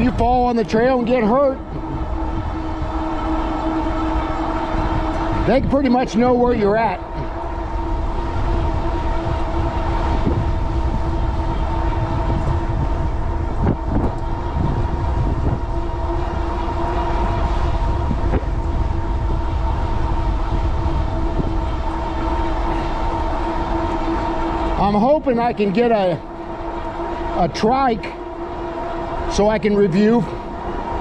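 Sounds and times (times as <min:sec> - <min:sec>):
electric motor whine: 0:00.0 - 0:31.0
wind buffeting microphone: 0:00.0 - 0:31.0.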